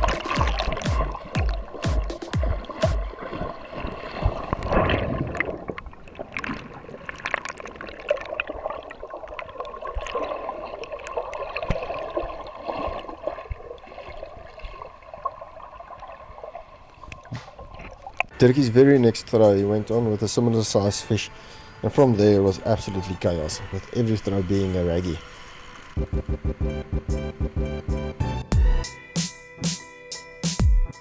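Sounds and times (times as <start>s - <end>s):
water washing and gurgling: 0.0s - 16.4s.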